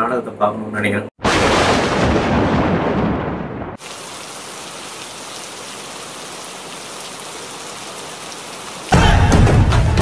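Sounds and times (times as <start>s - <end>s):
deep thunder rumble: 1.2s - 3.8s
heavy rain hissing: 3.8s - 9.4s.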